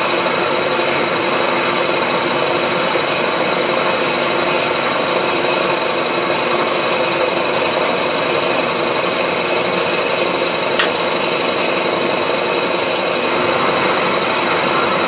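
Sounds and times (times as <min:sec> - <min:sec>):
milling machine running: 0:00.0 - 0:15.0
sharp click: 0:10.8 - 0:11.0.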